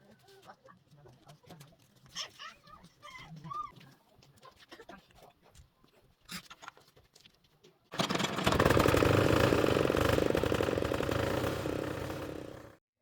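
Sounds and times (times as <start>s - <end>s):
small diesel engine running: 8.0s - 12.8s.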